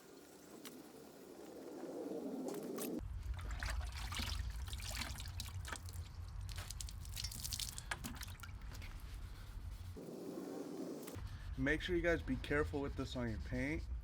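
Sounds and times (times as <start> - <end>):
water trickling and dripping: 3.2 - 8.9.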